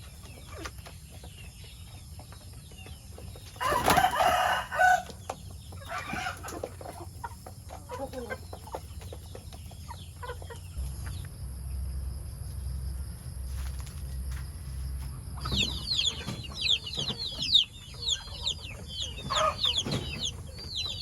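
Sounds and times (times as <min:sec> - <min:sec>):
chickens clucking: 0:00.0 - 0:11.4, 0:14.1 - 0:21.0
steady low hum: 0:08.8 - 0:19.0.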